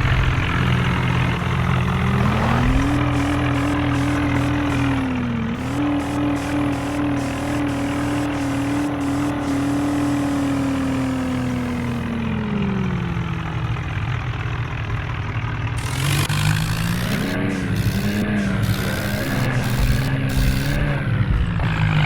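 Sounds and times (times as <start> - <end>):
vehicle engine under load: 0.0 - 22.0.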